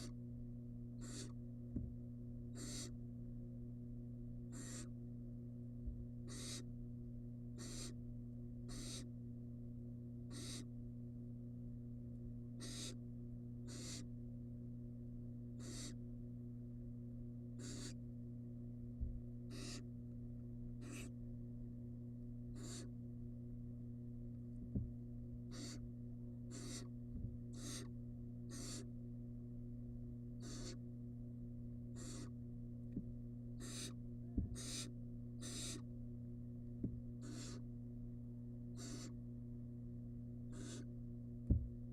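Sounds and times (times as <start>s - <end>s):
electrical hum: 0.0s - 41.9s
owl chick hissing calls: 1.0s - 1.4s, 2.5s - 3.0s, 4.5s - 5.0s, 6.2s - 6.7s, 7.6s - 8.0s, 8.7s - 9.1s, 10.3s - 10.7s, 12.6s - 13.0s, 13.6s - 14.1s, 15.6s - 16.0s, 17.6s - 18.0s, 19.5s - 19.9s, 20.8s - 21.2s, 22.5s - 23.0s, 25.5s - 25.9s, 26.5s - 26.9s, 27.5s - 27.9s, 28.5s - 28.9s, 30.4s - 30.8s, 31.9s - 32.4s, 33.6s - 35.9s, 37.2s - 37.7s, 38.7s - 39.2s, 40.5s - 40.9s
soft low thumps: 1.7s - 2.0s, 18.9s - 19.3s, 24.5s - 25.3s, 27.0s - 27.5s, 32.9s - 33.2s, 34.2s - 34.8s, 36.7s - 37.2s, 41.4s - 41.9s.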